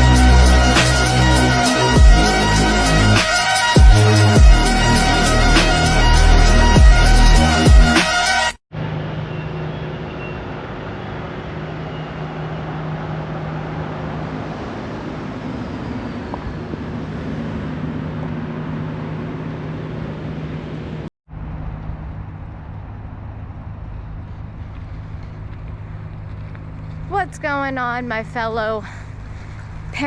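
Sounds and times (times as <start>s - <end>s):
constant low hum: 10.6s - 30.0s.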